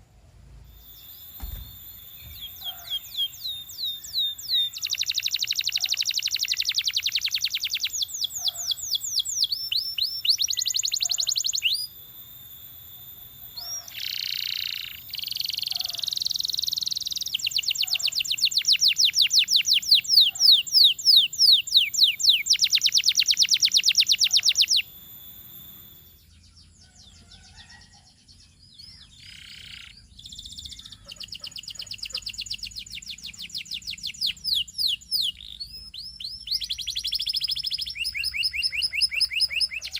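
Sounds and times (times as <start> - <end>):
canary singing trills: 0.6 - 39.9.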